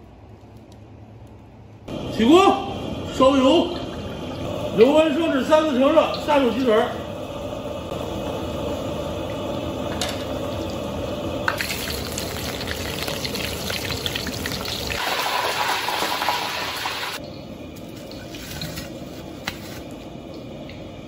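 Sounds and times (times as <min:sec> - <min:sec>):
chicken deep-frying in oil: 0:11.4 - 0:19.4.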